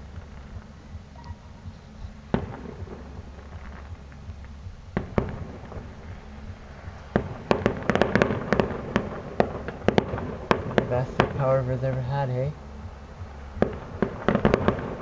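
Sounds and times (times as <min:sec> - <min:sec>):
crackling firework bangs: 0:02.3 - 0:06.1, 0:07.0 - 0:12.4, 0:13.6 - 0:15.0
fireworks bangs: 0:02.3 - 0:06.2, 0:07.0 - 0:12.5, 0:13.6 - 0:15.0.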